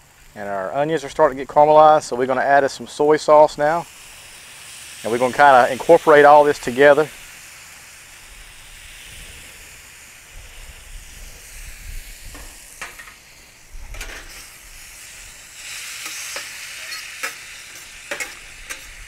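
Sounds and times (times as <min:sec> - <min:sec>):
food sizzling on griddle pan: 0:00.0 - 0:19.0
metal spatula scraping pan: 0:16.0 - 0:18.9.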